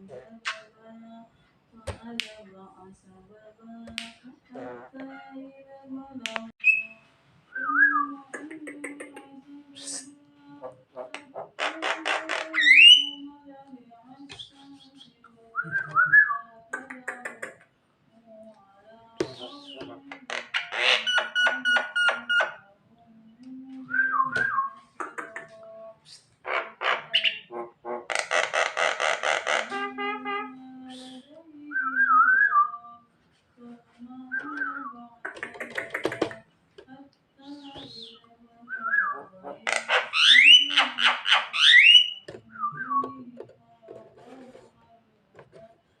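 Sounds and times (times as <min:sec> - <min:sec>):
bird whistled notes: 0:06.6 - 0:07.0
myna calling: 0:19.2 - 0:22.6, 0:26.4 - 0:31.2, 0:37.5 - 0:43.3.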